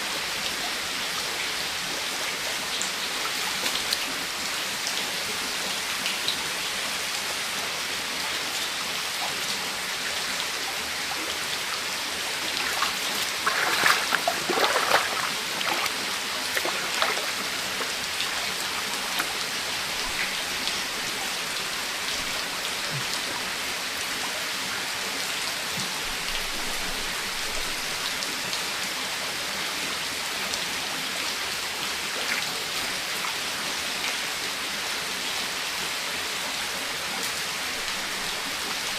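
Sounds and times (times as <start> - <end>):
sharp knocks and splashes: 12.5 - 20.7.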